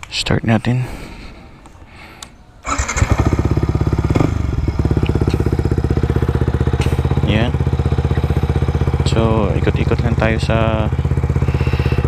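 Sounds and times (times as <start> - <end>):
motorcycle engine starting and idling: 2.6 - 12.0.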